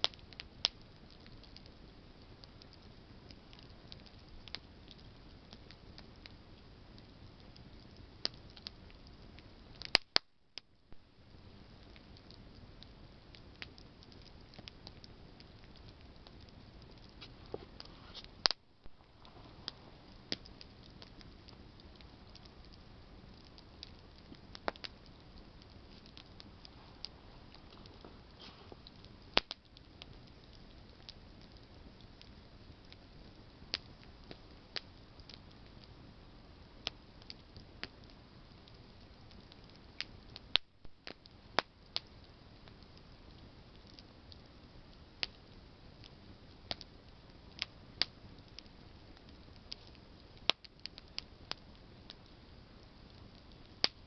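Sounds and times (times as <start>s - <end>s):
sharp pops of fire: 0.0s - 1.8s, 7.0s - 35.8s, 39.5s - 43.1s, 45.2s - 52.4s, 53.1s - 54.0s
campfire crackling: 0.0s - 54.0s
soft steady hiss: 0.0s - 54.0s.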